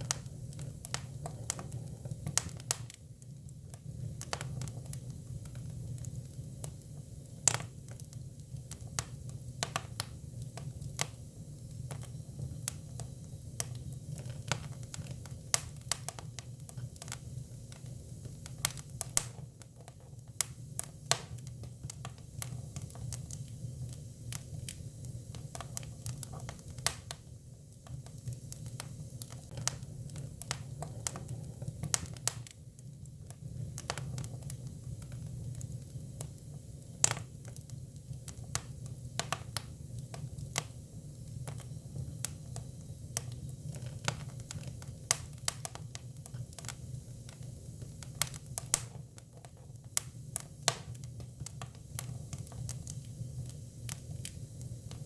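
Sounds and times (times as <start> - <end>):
firewood crackling and popping: 0.0 - 55.0
low fire rumble: 0.0 - 55.0.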